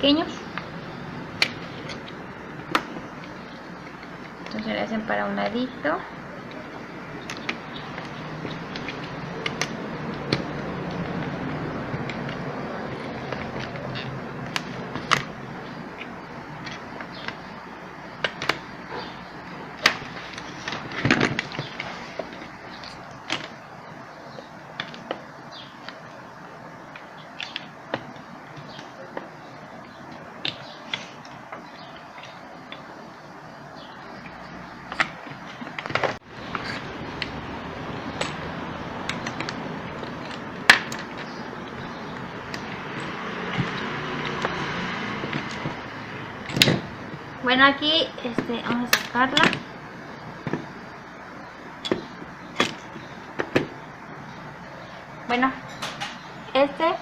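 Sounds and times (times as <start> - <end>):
clicks and knocks of handling parts: 6.5 - 23.6, 24.3 - 26.2, 26.8 - 33.0, 34.1 - 47.3, 48.3 - 49.7, 51.7 - 53.8, 55.7 - 56.3.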